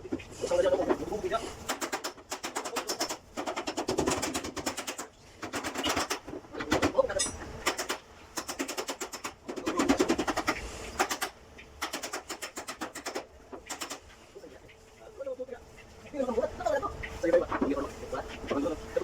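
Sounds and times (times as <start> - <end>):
rapid mechanical rattling: 1.2 - 14.2.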